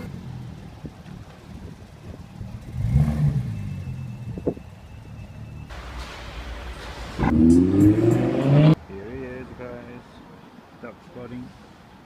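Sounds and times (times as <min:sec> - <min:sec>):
car engines: 0:00.0 - 0:12.0
passing traffic rushing: 0:00.0 - 0:12.0
engine revving: 0:02.6 - 0:04.0, 0:07.2 - 0:08.8.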